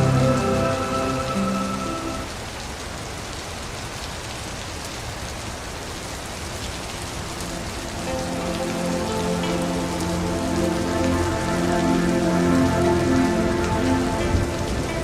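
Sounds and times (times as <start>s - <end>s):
soft sustained music tones: 0.0s - 2.3s, 7.0s - 15.0s
rain pattering into puddle: 0.0s - 15.0s.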